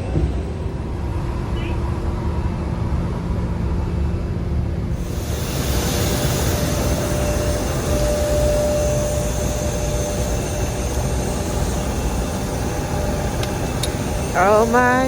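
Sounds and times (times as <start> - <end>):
jet engines roaring: 0.0 - 15.0
high steady whine: 0.8 - 15.0.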